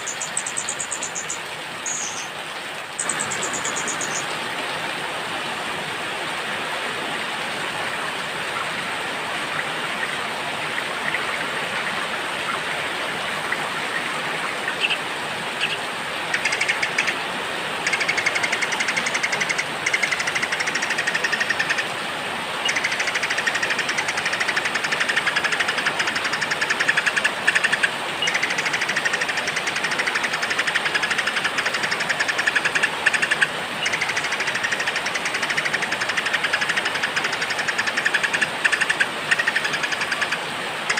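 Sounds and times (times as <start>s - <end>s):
songbird buzzy trills: 0.0s - 2.4s, 3.0s - 4.3s
rain falling: 0.0s - 40.9s.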